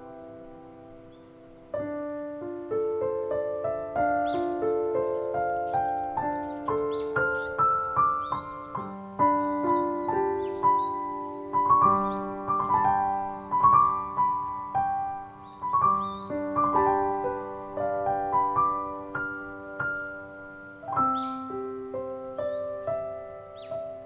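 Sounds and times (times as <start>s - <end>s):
slow solo piano: 0.0s - 24.0s
faint high bird calls: 3.9s - 24.0s.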